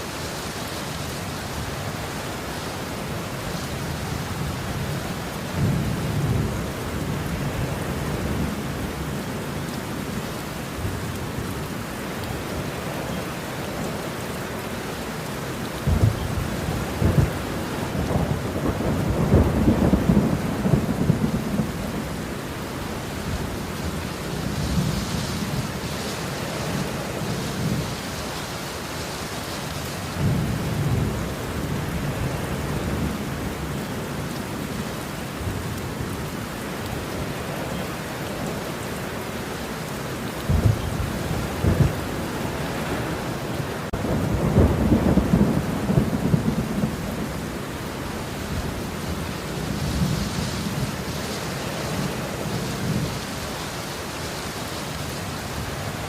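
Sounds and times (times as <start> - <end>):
heavy rain: 0.0 - 56.0
rolling thunder: 15.8 - 22.3, 40.4 - 42.2, 43.9 - 47.6.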